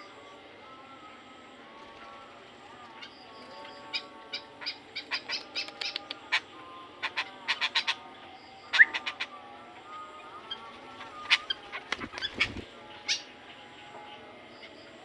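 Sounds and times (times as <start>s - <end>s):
bird chirping: 9.9s - 15.0s.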